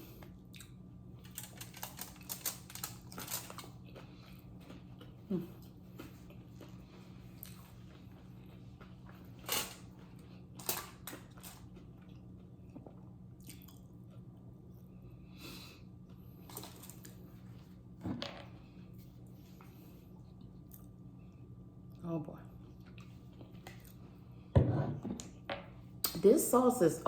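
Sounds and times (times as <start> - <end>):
person chewing food: 0.0 - 15.0, 22.6 - 24.5
tortilla chips crunching: 0.5 - 14.2.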